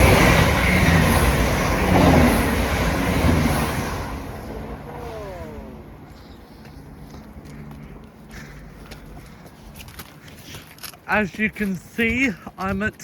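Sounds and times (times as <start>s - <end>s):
train passing with rumble: 0.0s - 9.8s.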